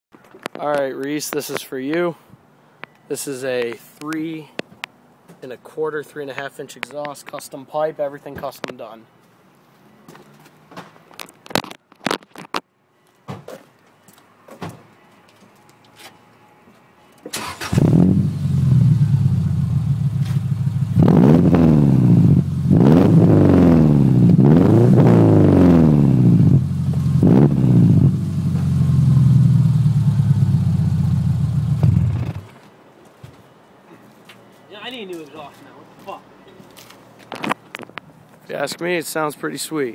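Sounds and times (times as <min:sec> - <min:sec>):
car engine idling and revving: 0:17.7 - 0:32.6.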